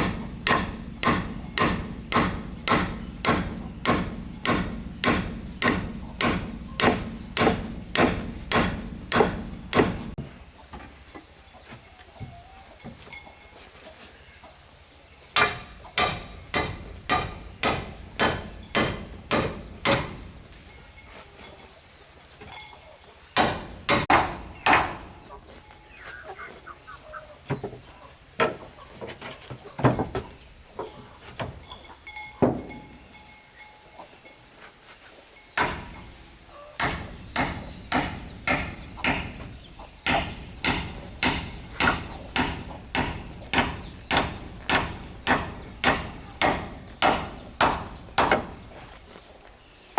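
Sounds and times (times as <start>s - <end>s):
hand tool striking wood: 0.0s - 10.9s, 15.4s - 20.6s, 23.4s - 25.3s, 32.4s - 32.8s, 35.6s - 36.2s, 36.8s - 49.0s.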